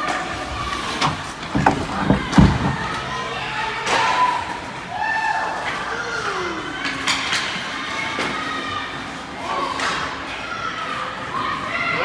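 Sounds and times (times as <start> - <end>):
heavy thuds in ice rink: 1.1 - 3.2.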